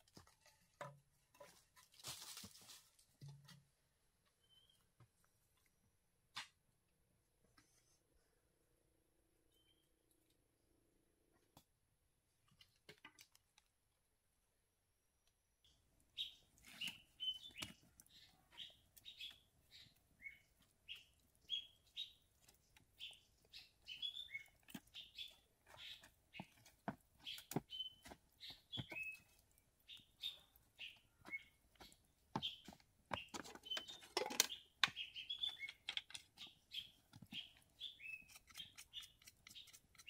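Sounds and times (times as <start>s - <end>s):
bird chirping: 4.4s - 4.9s, 9.5s - 10.0s, 15.6s - 40.0s
wood fire crackling: 15.9s - 33.8s.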